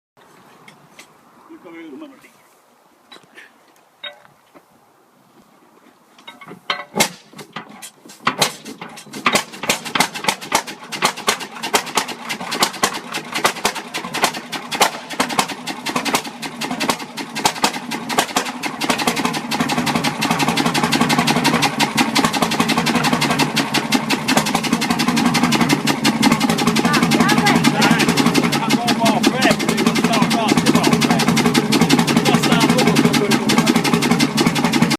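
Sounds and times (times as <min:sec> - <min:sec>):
diesel engine starting and running: 0:07.0 - 0:34.9.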